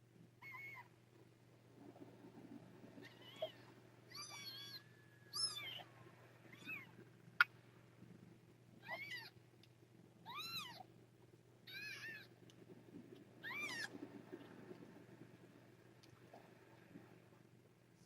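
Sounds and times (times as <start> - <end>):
kittens mewing: 11.7 - 12.3.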